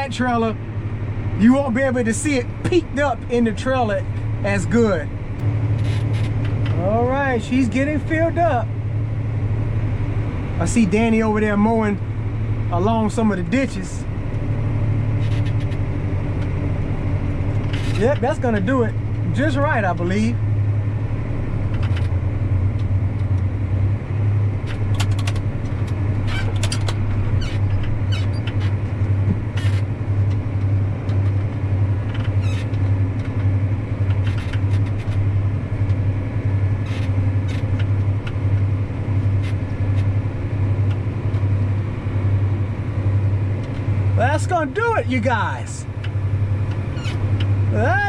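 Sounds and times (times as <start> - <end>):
tractor engine running under load: 0.0 - 48.0
light clicks and rattles: 24.6 - 36.0.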